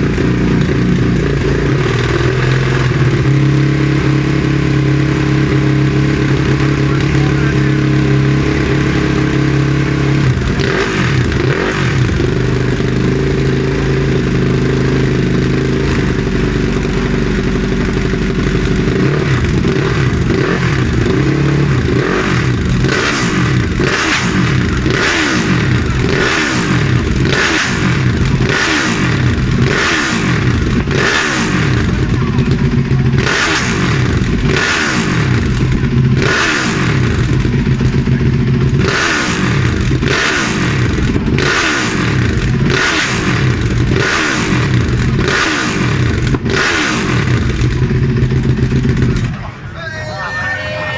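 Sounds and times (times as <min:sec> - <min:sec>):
motorcycle engine revving: 0:00.0 - 0:49.7.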